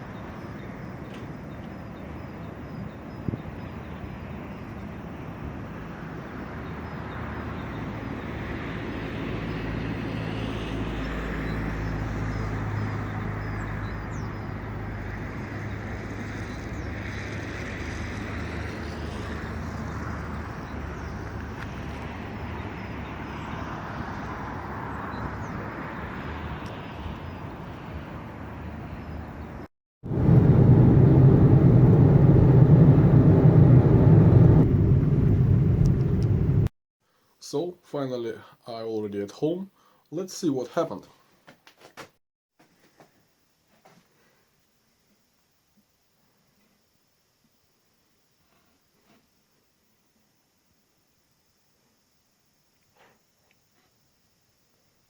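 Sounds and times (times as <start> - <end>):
passing vehicles: 0.0 - 36.7
loud low rumble: 30.0 - 36.7.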